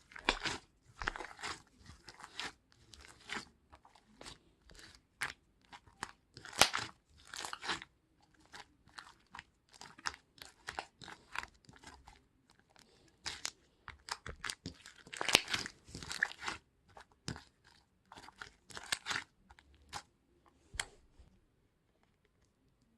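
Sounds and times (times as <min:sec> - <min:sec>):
close crunching and crackling: 0:12.8 - 0:20.0.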